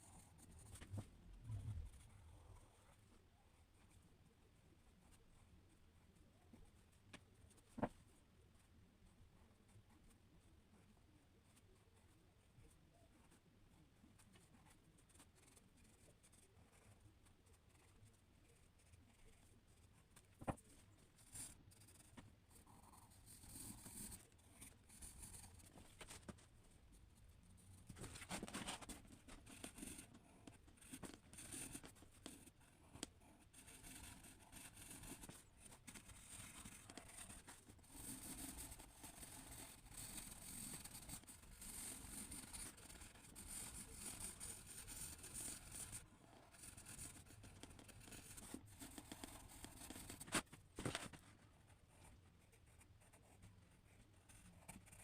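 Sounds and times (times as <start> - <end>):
drawing tool scratching paper: 27.8 - 51.2.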